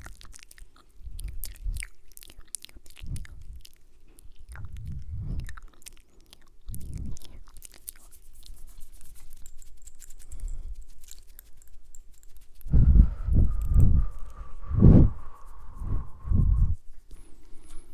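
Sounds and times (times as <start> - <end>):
wet mouth clicks and smacks: 0.0 - 17.9
soft low thumps: 12.7 - 16.8.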